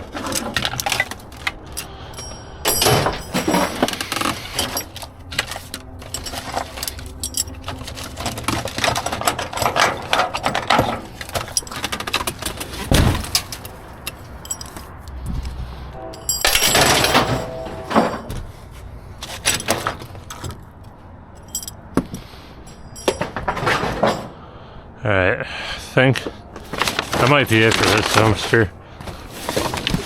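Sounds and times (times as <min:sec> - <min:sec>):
scrap metal clanking: 0:00.0 - 0:15.0, 0:16.0 - 0:18.6, 0:21.4 - 0:24.4.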